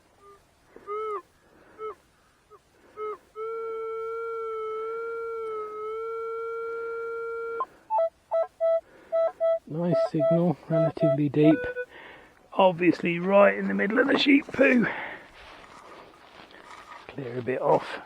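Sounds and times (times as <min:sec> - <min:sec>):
metal detector beeps and tones: 0:07.9 - 0:11.8.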